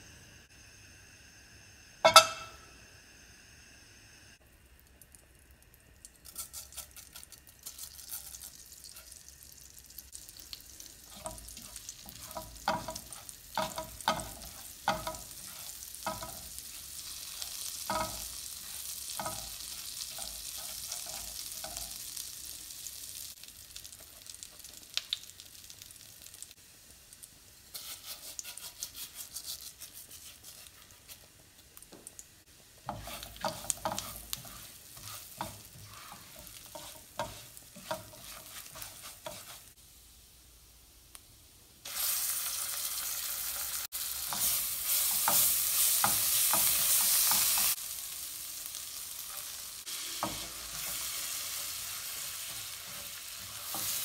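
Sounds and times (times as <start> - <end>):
seeds sizzling in butter: 0.0 - 54.0
spatula knocking and scraping pan: 2.0 - 2.6, 11.0 - 22.0, 32.8 - 39.8, 44.2 - 47.8, 50.2 - 54.0.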